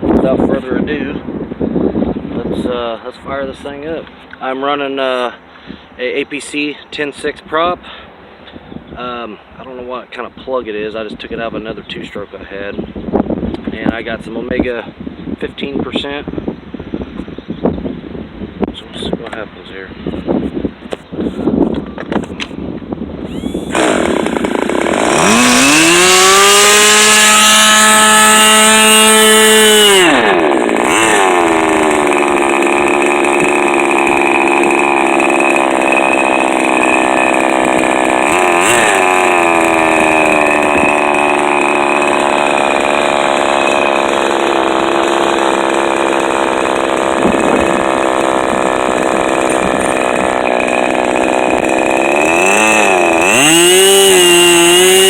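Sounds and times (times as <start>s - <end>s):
model airplane engine whining: 23.2s - 55.0s.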